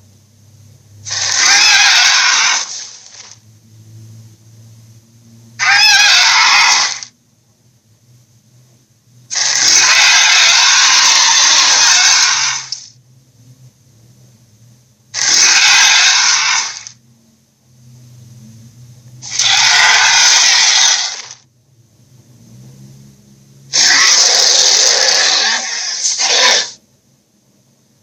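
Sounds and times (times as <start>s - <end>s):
low steady hum: 0.0s - 1.3s, 2.7s - 5.6s, 7.0s - 9.6s, 12.6s - 15.2s, 16.8s - 19.5s, 21.1s - 23.8s, 26.7s - 28.0s
rasping monster roars: 1.0s - 3.0s, 5.6s - 7.1s, 9.3s - 12.8s, 15.2s - 17.0s, 19.2s - 21.4s, 23.7s - 26.8s.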